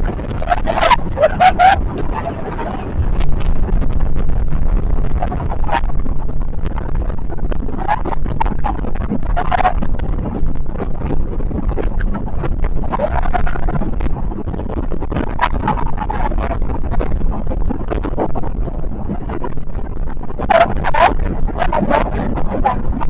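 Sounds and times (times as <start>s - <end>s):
motorboat engine drone: 0.0s - 23.0s
wind buffeting microphone: 0.0s - 23.0s.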